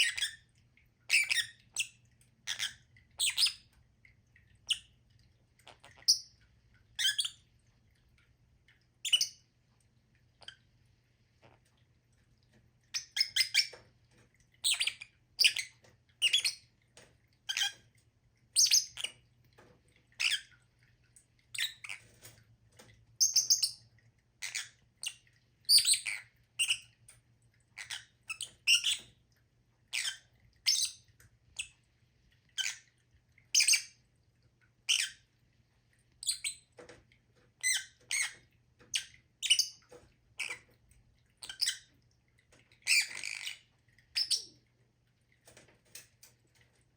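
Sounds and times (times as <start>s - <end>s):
bird chirping and squawking: 1.1s - 3.7s, 12.9s - 13.8s, 14.6s - 16.6s, 18.6s - 19.2s, 23.2s - 23.8s, 24.4s - 27.0s, 27.8s - 29.1s, 29.9s - 31.0s, 33.6s - 34.0s, 34.9s - 35.2s, 36.2s - 36.7s, 37.6s - 39.8s, 41.4s - 41.9s, 42.8s - 44.6s.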